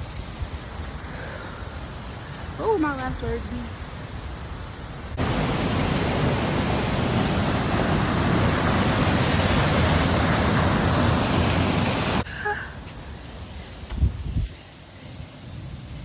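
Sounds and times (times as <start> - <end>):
waterfall rushing: 5.1 - 12.3.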